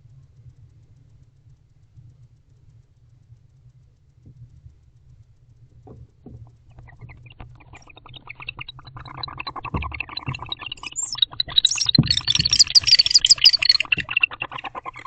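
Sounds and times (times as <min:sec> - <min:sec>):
owls chittering: 0:06.7 - 0:15.0.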